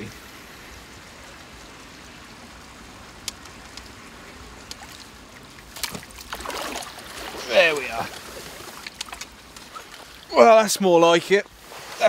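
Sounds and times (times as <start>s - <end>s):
faint ticks: 0.7s - 6.3s, 8.2s - 10.1s
water swirling and lapping: 4.6s - 10.9s
fish splashing: 4.8s - 10.3s.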